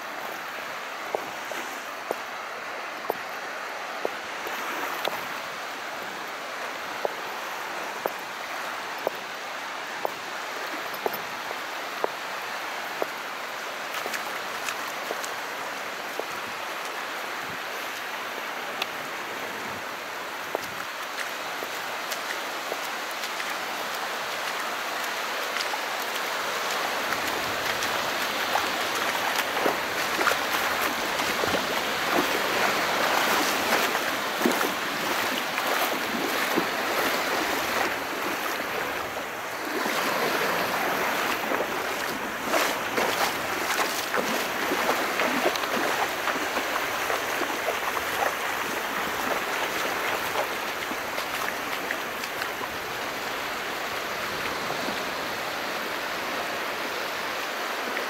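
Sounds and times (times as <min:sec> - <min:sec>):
small waves washing: 0:00.0 - 0:58.0.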